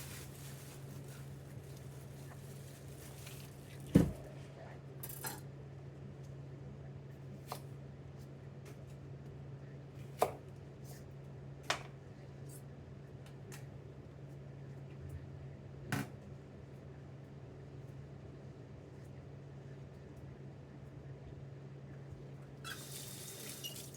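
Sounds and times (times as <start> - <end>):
kitchen equipment hum: 0.0 - 5.4, 22.6 - 23.9.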